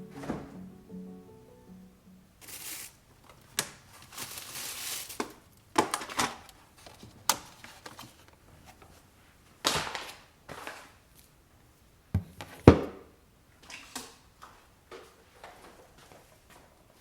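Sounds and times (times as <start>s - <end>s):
items clattering: 0.0s - 0.7s
items knocking and thudding: 0.1s - 0.6s, 12.2s - 13.1s.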